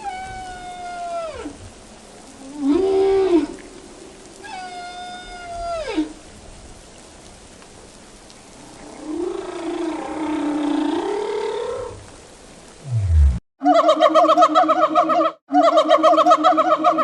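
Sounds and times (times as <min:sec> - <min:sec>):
low animal call: 0:08.6 - 0:12.2.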